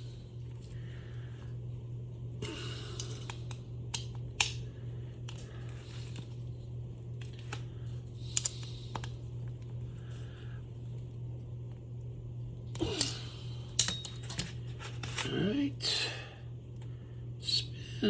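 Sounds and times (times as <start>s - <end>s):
steady low hum: 0.0s - 18.0s
screwdriver clicks and scrapes: 13.8s - 15.2s.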